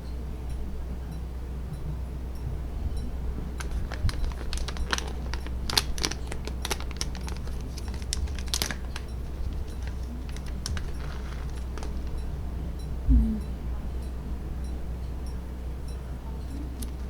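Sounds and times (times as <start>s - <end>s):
steady low hum: 0.0s - 17.0s
irregular light clicks and crinkles: 3.6s - 12.3s, 15.9s - 17.0s.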